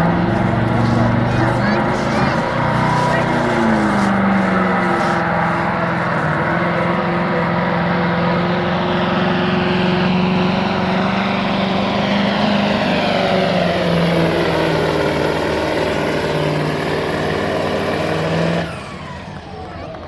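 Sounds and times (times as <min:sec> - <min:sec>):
diesel engine at high revs: 0:00.0 - 0:20.0.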